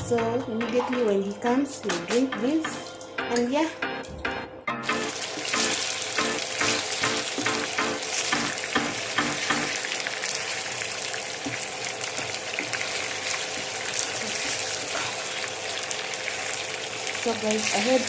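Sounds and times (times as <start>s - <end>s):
chicken sizzling in oil: 4.8s - 18.0s
stirring strokes: 12.2s - 15.4s.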